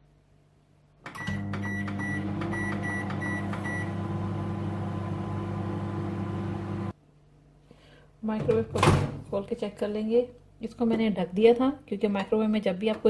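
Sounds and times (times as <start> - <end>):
microwave humming: 1.1 - 7.0.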